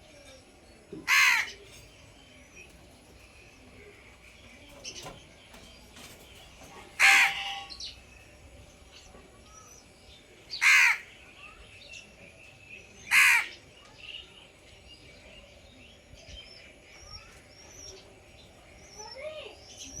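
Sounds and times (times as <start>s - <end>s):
small birds chirping: 0.0s - 20.0s
crow cawing: 1.1s - 1.6s, 7.0s - 7.7s, 10.6s - 11.1s, 13.1s - 13.6s.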